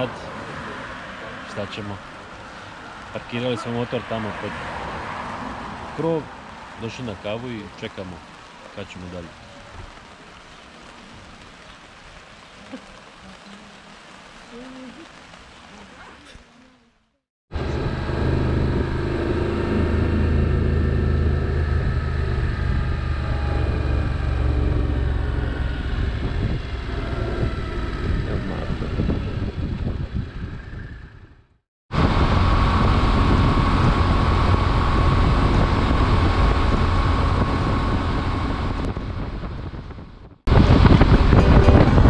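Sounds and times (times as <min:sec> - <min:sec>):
wind noise on microphone: 0:17.6 - 0:42.0.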